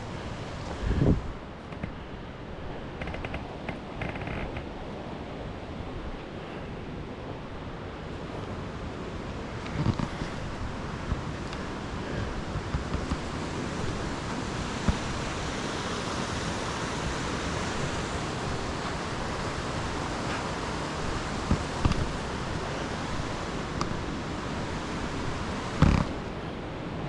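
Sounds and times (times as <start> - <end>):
waterfall rushing water: 10.2 - 27.0.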